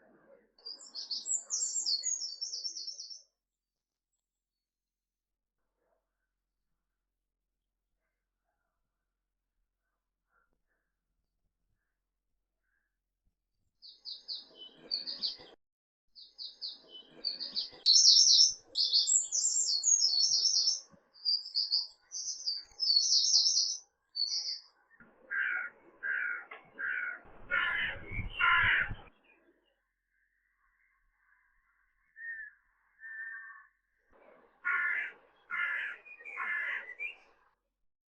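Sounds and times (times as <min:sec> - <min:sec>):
small birds chirping and trilling: 0:00.5 - 0:03.4, 0:13.8 - 0:15.6, 0:16.2 - 0:37.6
lower bird call: 0:25.3 - 0:29.2, 0:30.8 - 0:33.8.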